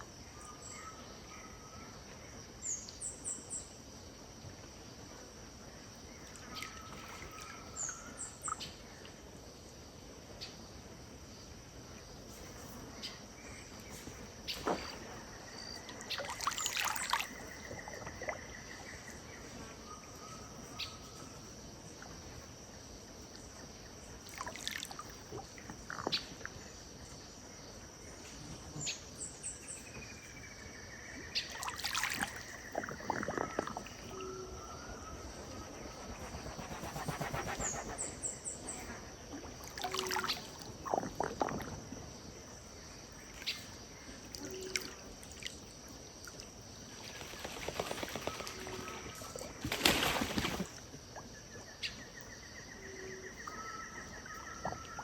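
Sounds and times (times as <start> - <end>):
insect drone: 0.0 - 55.0
river water lapping: 14.6 - 19.0, 24.0 - 25.9, 31.4 - 42.1
birds calling and chirping: 31.0 - 41.1.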